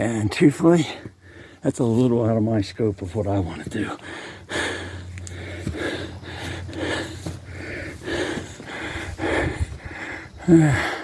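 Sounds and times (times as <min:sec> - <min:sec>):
steady low hum: 0:00.0 - 0:11.0
man breathing hard: 0:00.8 - 0:01.6, 0:03.8 - 0:11.0.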